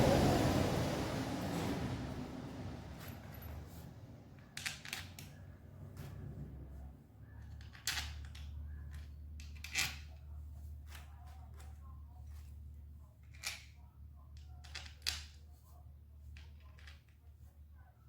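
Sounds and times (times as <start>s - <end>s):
low hum: 0.0s - 4.4s.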